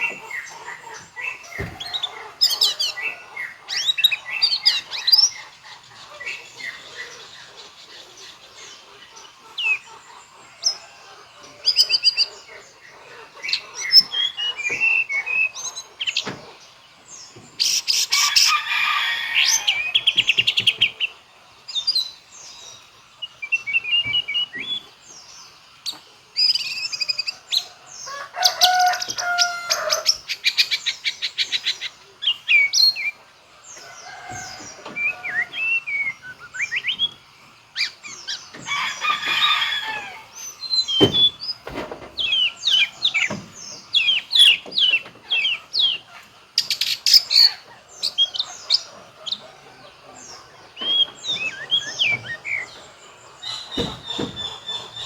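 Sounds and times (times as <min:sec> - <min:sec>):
rapid rattling bird trills: 0:00.0 - 0:55.0
bird singing whistled song: 0:23.4 - 0:24.9, 0:34.9 - 0:37.2, 0:50.8 - 0:52.7.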